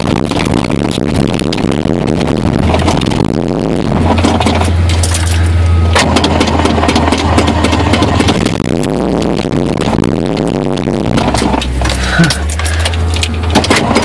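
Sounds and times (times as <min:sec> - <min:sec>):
engine starter cranking: 0:03.9 - 0:08.6, 0:11.1 - 0:14.0.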